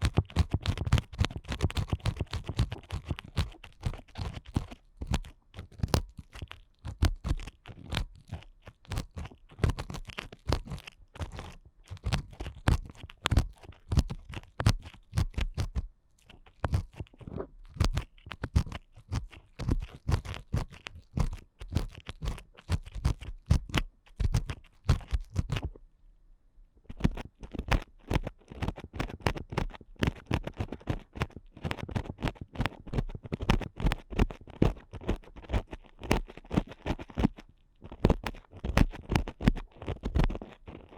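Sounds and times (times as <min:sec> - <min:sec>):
ear picks scratching microphone: 0:00.0 - 0:25.8, 0:26.8 - 0:40.9.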